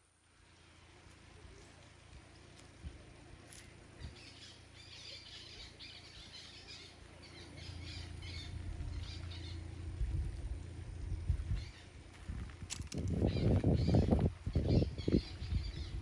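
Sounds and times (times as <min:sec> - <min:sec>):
birds squawking: 0:04.0 - 0:12.2, 0:13.2 - 0:16.0
low rumble: 0:05.5 - 0:16.0.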